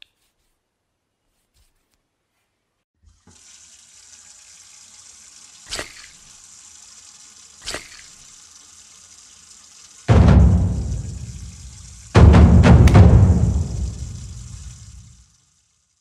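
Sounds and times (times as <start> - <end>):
tap running into sink: 3.2 - 3.5, 10.1 - 15.2
water splashes: 3.2 - 8.4, 10.0 - 15.4.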